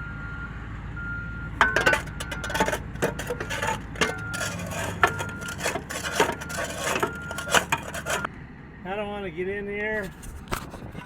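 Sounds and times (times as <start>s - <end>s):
knocks and clanks in steel hopper: 1.5s - 8.3s.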